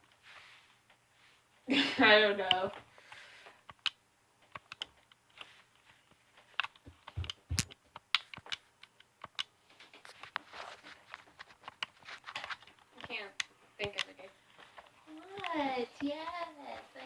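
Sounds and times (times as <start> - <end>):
light clicks and taps: 11.1 - 16.9.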